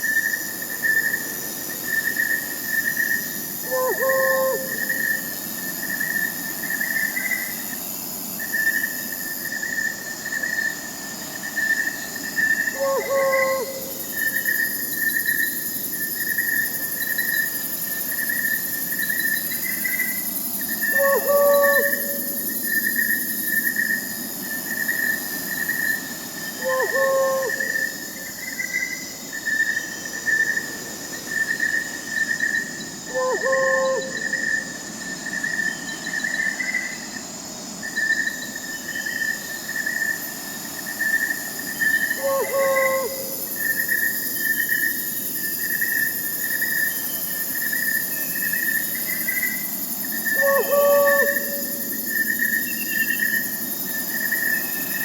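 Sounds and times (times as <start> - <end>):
crickets chirping: 0.0 - 55.0
faint night forest hiss: 0.0 - 55.0
owl hooting: 3.6 - 5.2, 12.7 - 14.0, 20.9 - 22.6, 26.6 - 28.3, 33.1 - 34.5, 42.0 - 43.7, 50.3 - 52.1.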